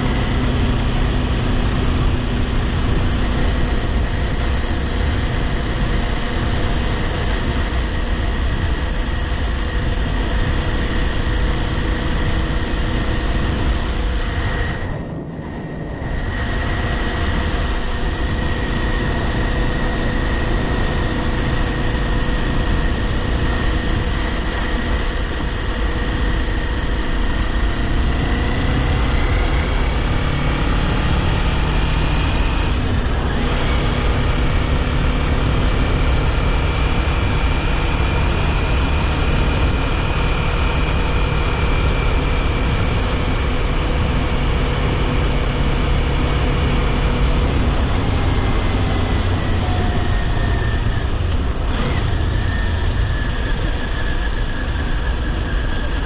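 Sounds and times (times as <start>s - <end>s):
motorcycle engine running: 0.0s - 56.0s
road noise: 0.0s - 56.0s
wind noise: 0.0s - 56.0s.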